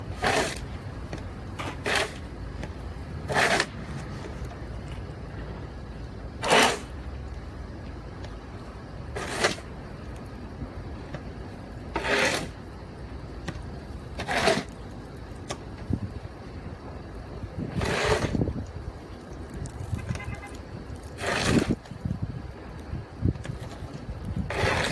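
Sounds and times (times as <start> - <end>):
snow shovel scraping snow: 0.0 - 0.9, 1.5 - 2.3, 3.2 - 4.5, 6.4 - 6.9, 9.1 - 9.7, 12.0 - 12.6, 14.2 - 14.8, 17.7 - 18.4, 21.1 - 21.8, 24.5 - 24.9.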